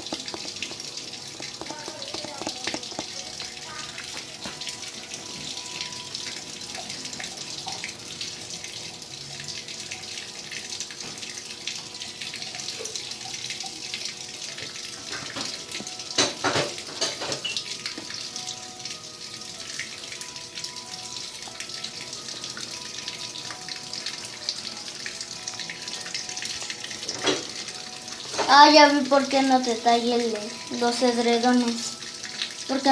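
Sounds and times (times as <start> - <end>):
water splashing: 0.0 - 4.4
washing machine water sloshing: 0.0 - 5.6.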